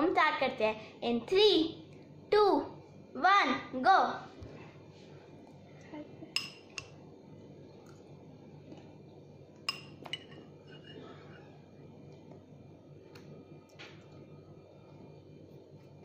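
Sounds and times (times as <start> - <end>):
faint steady hum: 0.0 - 16.0
spoons clinking against glass bowls: 6.3 - 7.0, 9.6 - 11.4.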